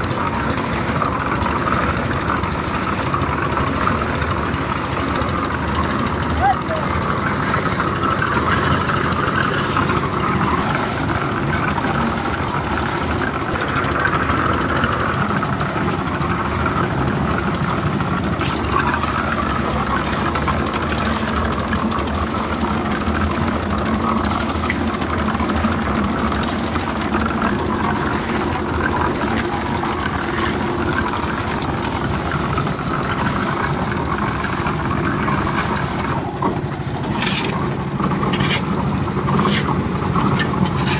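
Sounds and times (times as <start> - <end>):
engine running steadily: 0.0 - 40.9.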